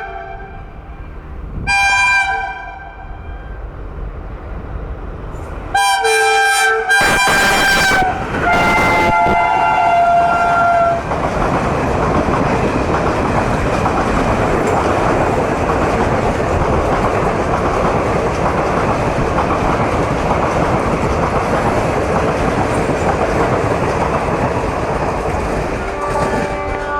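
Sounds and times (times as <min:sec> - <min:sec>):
train horn blast: 0:00.0 - 0:00.8, 0:01.7 - 0:03.6, 0:05.7 - 0:11.1, 0:25.7 - 0:26.9
train rushing past: 0:00.0 - 0:26.9
wheels clacking over rail joints: 0:10.4 - 0:26.9.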